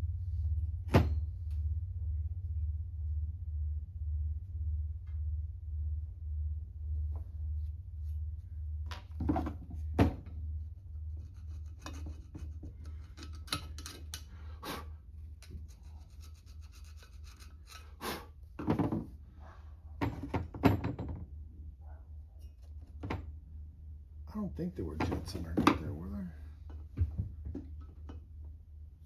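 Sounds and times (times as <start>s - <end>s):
steady low hum: 0.0s - 29.0s
small metal parts clicking and scraping: 11.2s - 14.6s, 15.2s - 18.0s.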